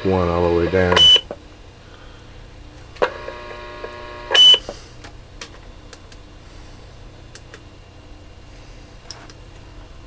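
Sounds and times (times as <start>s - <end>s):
radio buzzing tone: 0.0s - 1.4s, 3.0s - 4.7s.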